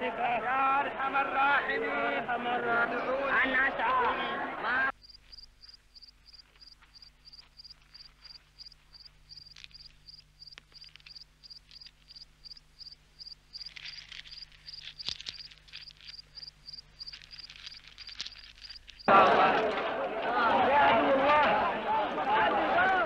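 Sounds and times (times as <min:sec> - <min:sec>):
cricket chirping: 0:04.9 - 0:19.1
scratchy rustling: 0:05.1 - 0:19.1.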